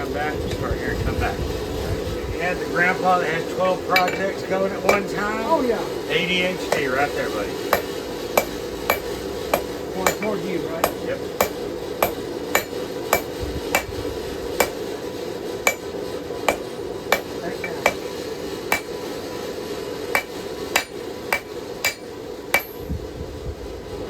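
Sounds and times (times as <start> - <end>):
hammer striking steel on anvil: 3.9 - 5.4, 6.7 - 19.5, 20.1 - 22.9.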